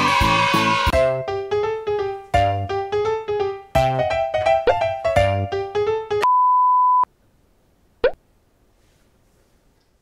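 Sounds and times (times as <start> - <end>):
bouncy keyboard music: 0.0 - 6.2.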